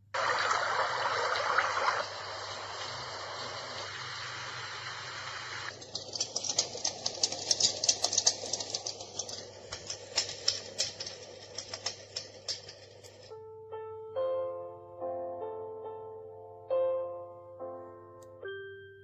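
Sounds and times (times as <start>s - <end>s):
white noise machine hissing: 0.0s - 13.3s.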